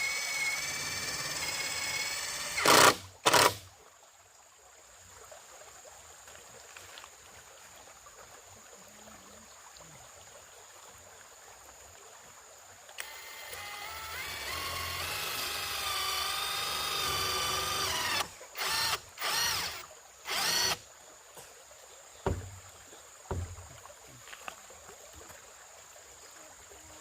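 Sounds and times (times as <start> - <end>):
power drill whining: 0.0 - 3.6, 13.0 - 20.8
sharp knocks: 22.2 - 22.6, 23.3 - 23.8.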